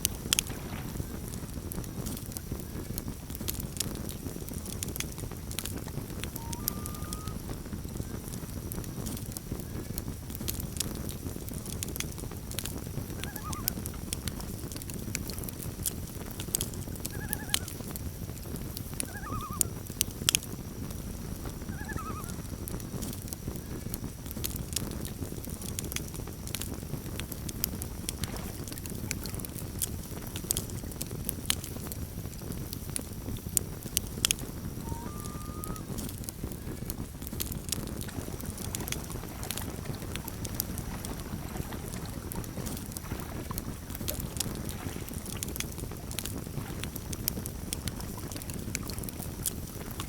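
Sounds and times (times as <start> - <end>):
campfire crackling and popping: 0.0 - 50.0
loon calling: 6.3 - 7.5, 13.2 - 13.8, 17.1 - 17.8, 19.0 - 19.8, 21.7 - 22.5, 34.8 - 35.9.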